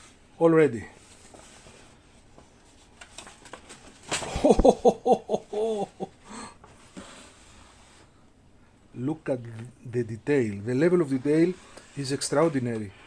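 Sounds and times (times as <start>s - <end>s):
rustle and knock of handling: 1.0s - 4.9s.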